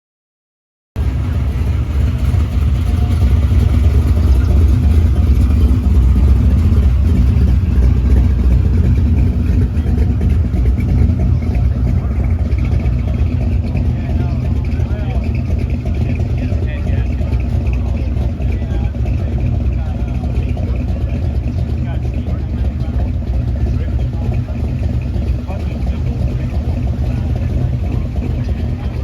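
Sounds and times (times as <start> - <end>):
car engine running: 1.0 - 29.0.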